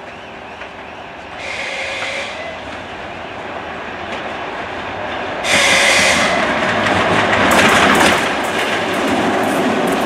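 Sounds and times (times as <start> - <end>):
train rolling rumble: 0.0 - 10.0
wheels clacking over rail joints: 4.0 - 10.0.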